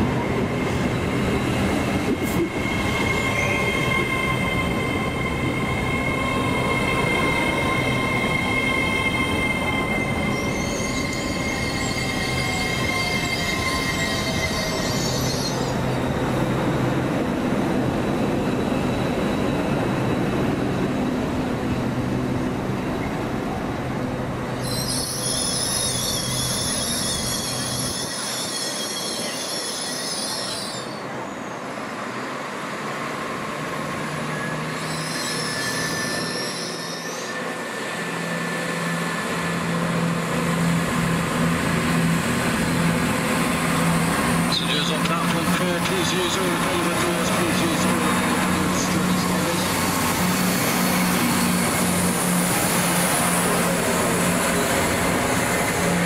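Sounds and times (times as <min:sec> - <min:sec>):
train running with steady hum: 0:00.0 - 0:56.0
high-pitched wavering wheel squeal: 0:02.5 - 0:16.0, 0:24.6 - 0:31.6, 0:34.3 - 0:39.4
diesel train engine hum: 0:37.3 - 0:56.0.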